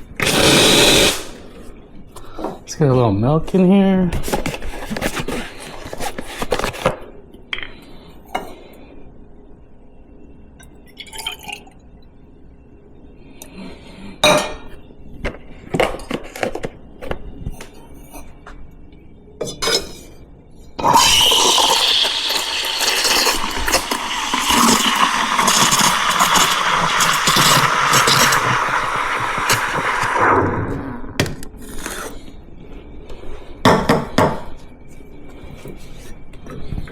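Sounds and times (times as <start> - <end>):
steam wand hissing: 0.2 - 1.4, 20.8 - 30.2.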